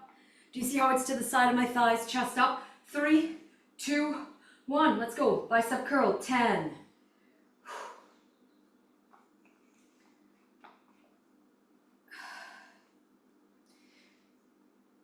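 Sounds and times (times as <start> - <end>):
woman breathing hard: 7.6 - 8.3, 12.1 - 13.0.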